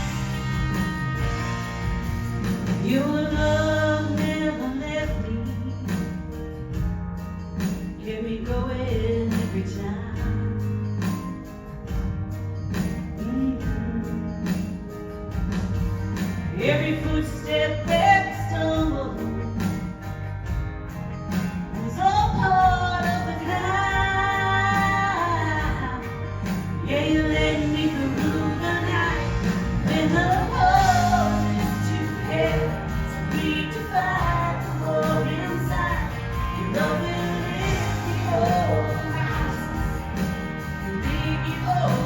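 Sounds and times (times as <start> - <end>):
band with bass and keyboards: 0.0 - 42.0
woman singing gospel: 2.6 - 6.3, 7.9 - 10.6, 13.2 - 14.9, 16.5 - 20.0, 21.7 - 42.0.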